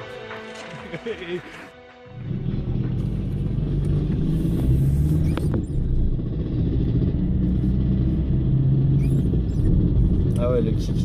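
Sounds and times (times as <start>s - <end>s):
two-stroke engine at low revs: 2.2s - 11.0s.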